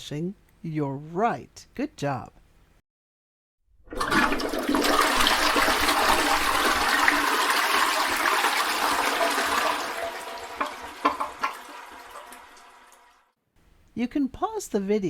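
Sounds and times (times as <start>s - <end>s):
toilet flushing: 3.8s - 13.3s.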